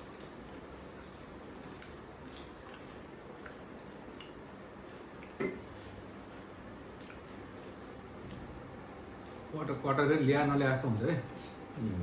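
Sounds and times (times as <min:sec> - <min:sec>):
person chewing: 0:00.0 - 0:09.4
steady background hiss: 0:00.0 - 0:12.0.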